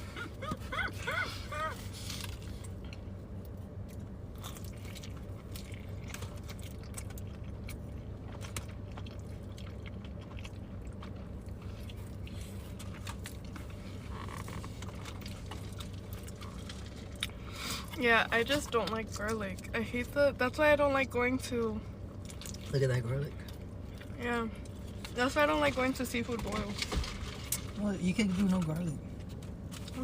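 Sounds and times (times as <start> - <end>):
steady low hum: 0.0 - 30.0
chewing and biting food: 1.7 - 18.0.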